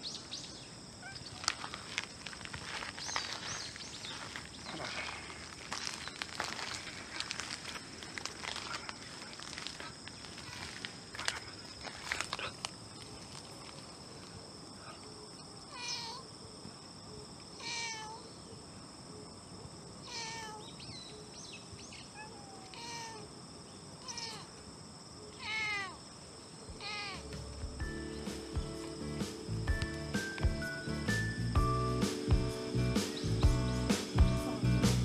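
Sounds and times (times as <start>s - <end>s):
cat meowing: 15.7s - 16.2s, 17.6s - 18.2s, 20.1s - 20.6s, 22.1s - 23.3s, 24.0s - 24.5s, 25.4s - 26.0s, 26.8s - 27.2s
high insect trilling: 26.7s - 35.0s
music: 27.2s - 35.0s.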